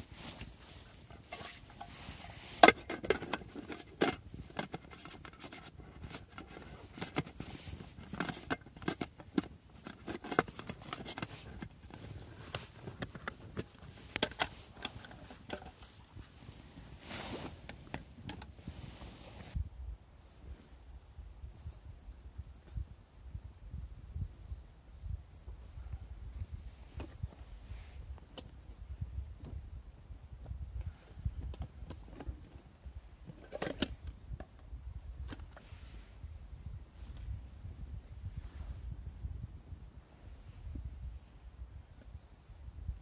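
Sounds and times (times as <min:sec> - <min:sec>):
rustling: 0:00.0 - 0:19.6
objects clicking and knocking: 0:01.1 - 0:16.2.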